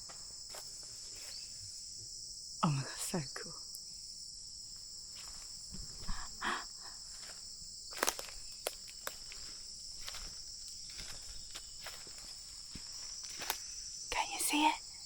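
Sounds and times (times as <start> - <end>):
insects chorus: 0.0 - 15.0
footsteps in undergrowth: 5.1 - 6.4, 7.0 - 13.8.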